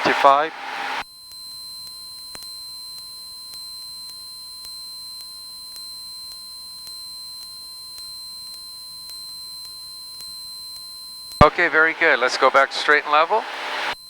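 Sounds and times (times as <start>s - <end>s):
faint regular ticks: 1.0s - 11.5s
high-pitched tone: 1.0s - 14.0s.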